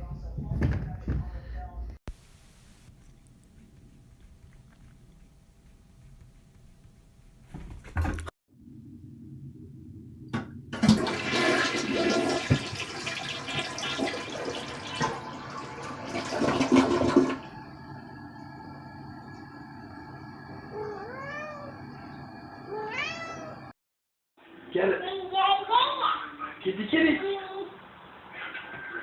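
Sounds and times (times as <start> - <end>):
toilet flushing: 10.7 - 23.7
steady hum: 17.0 - 23.7
cat meowing: 20.7 - 21.8, 22.7 - 23.7.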